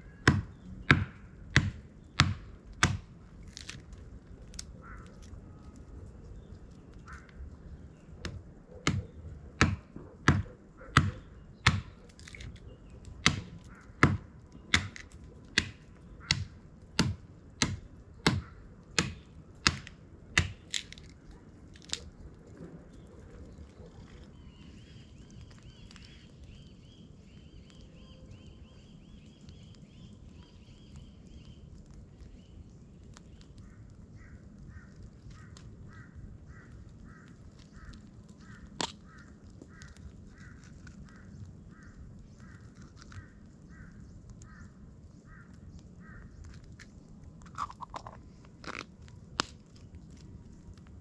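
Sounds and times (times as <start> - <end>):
kindling wood snapping: 2.8 - 5.4, 11.7 - 18.4, 19.0 - 22.3
birds calling: 4.6 - 5.4.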